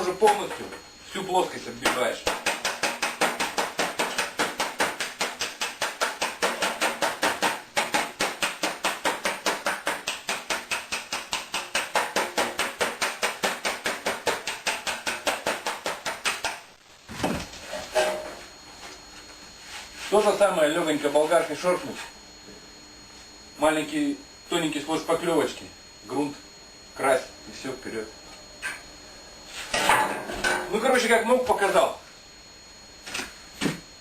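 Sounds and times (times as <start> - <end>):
hammer tapping sheet metal: 1.8 - 16.7.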